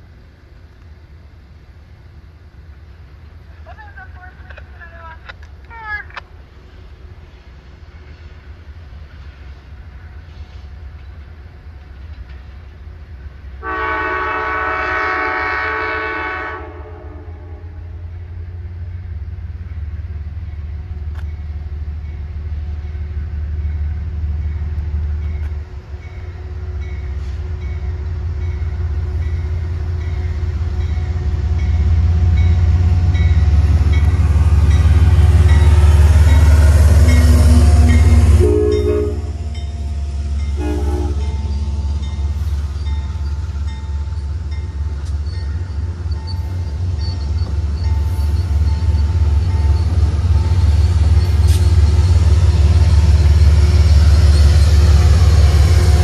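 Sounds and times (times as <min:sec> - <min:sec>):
diesel locomotive rumble: 0:00.0 - 0:56.0
train horn blast: 0:13.6 - 0:18.0, 0:35.7 - 0:39.5, 0:40.5 - 0:42.4.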